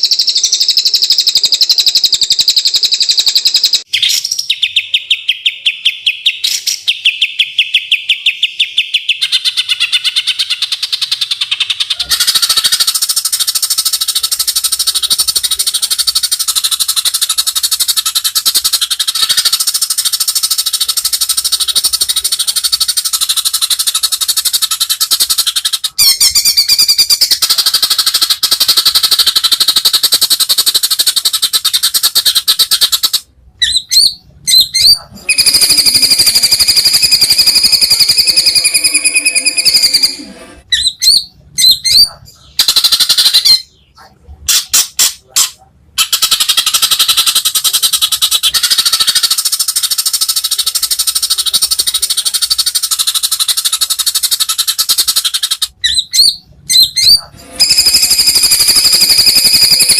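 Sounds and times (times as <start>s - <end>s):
songbird clicking chatter: 9.1s - 33.3s, 44.5s - 56.3s.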